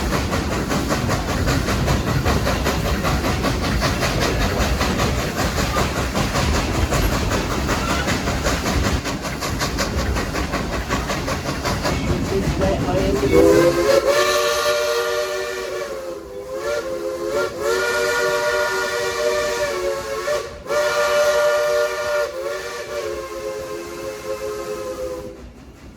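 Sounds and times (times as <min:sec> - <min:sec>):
steam train rumble and clatter: 0:00.0 - 0:25.9
steam locomotive whistle: 0:13.3 - 0:25.4.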